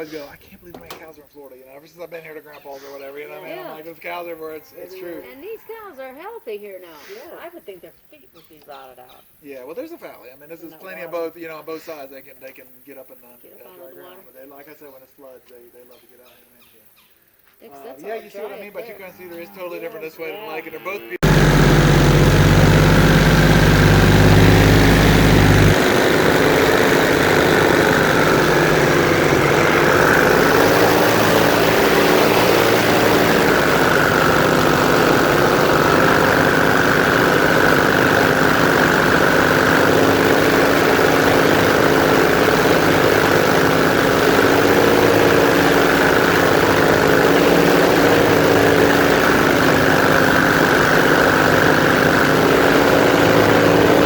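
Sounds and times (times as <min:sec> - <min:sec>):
deep low hum: 0:21.2 - 0:45.0
airboat engine and propeller running: 0:21.2 - 0:54.0.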